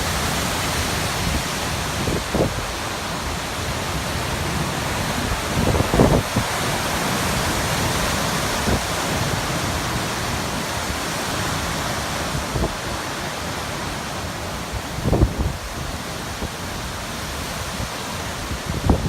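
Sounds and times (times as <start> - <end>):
loud rushing wind: 0.0 - 19.0
wind buffeting microphone: 4.1 - 11.1, 14.7 - 19.0.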